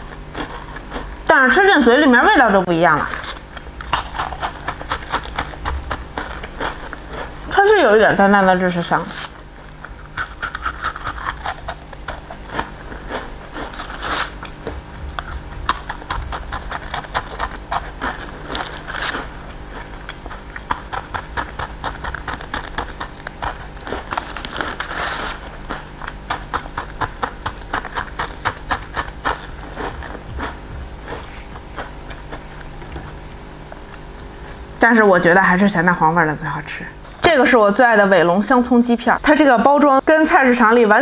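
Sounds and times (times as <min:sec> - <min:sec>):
crunchy snack being chewed: 0:00.0 - 0:01.3, 0:03.0 - 0:07.7, 0:09.1 - 0:34.1.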